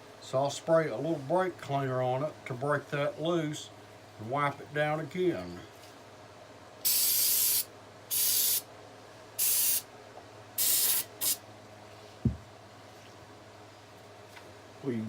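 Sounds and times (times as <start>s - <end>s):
aerosol spray hissing: 6.8s - 8.6s, 9.4s - 9.8s, 10.6s - 11.4s.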